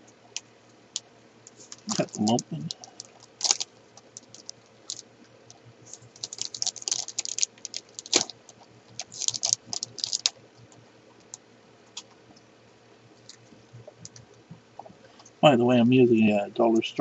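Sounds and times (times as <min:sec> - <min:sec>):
packaging crinkling: 0:01.5 - 0:11.4.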